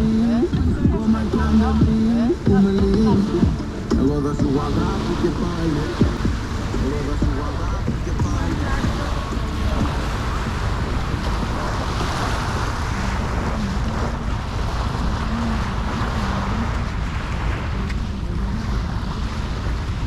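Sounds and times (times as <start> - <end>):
sea waves on a beach: 0.0 - 20.0
wind buffeting microphone: 0.0 - 20.0.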